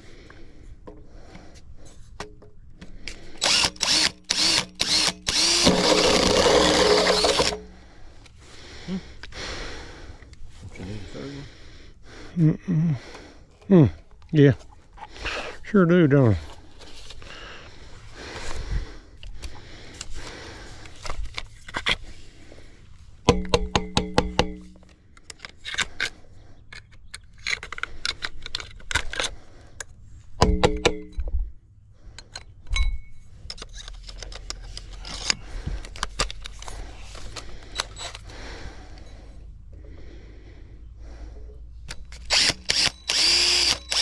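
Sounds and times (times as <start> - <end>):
pitched whirr: 3.4 - 7.8, 42.2 - 44.0
tools and parts clinking: 32.2 - 38.3.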